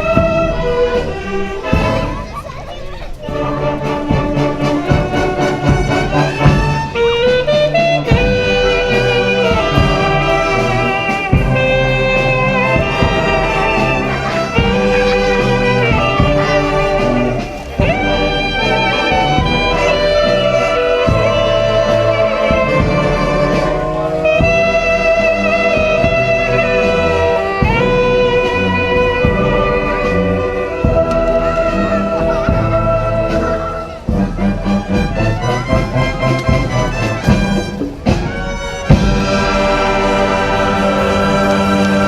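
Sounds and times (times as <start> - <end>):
wind band playing: 0.0 - 42.0.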